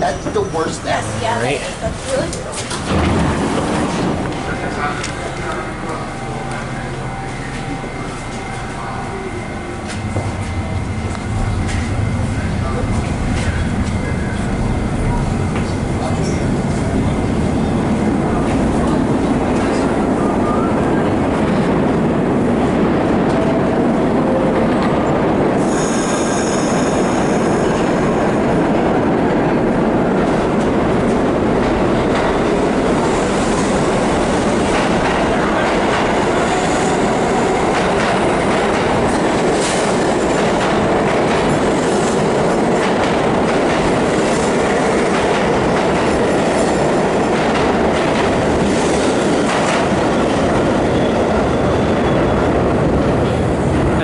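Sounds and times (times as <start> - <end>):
high wheel squeal: 0.0 - 1.0, 25.6 - 28.1
subway train rumbling on track: 0.0 - 54.0.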